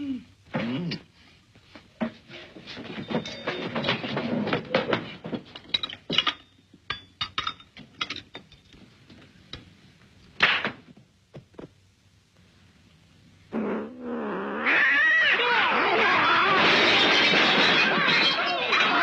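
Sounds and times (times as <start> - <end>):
knocks and clinks of hard objects: 2.0 - 8.9, 16.6 - 19.0.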